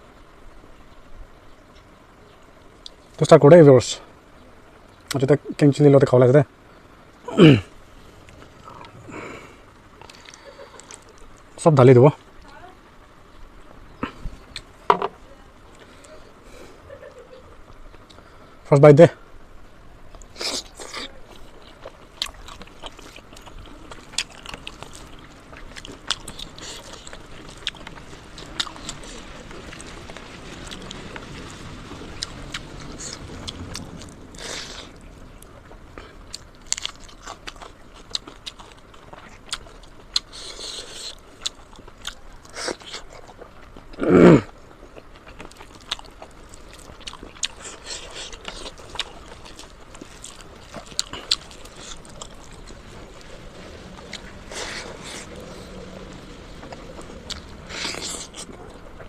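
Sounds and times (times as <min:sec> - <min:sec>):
chewing and crunching: 0:08.2 - 0:11.5, 0:20.1 - 0:59.0.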